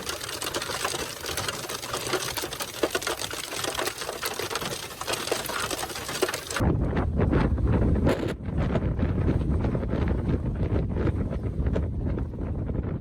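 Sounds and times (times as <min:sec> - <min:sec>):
hail clattering on vehicle: 0:00.0 - 0:06.6
wind buffeting microphone: 0:05.4 - 0:13.0.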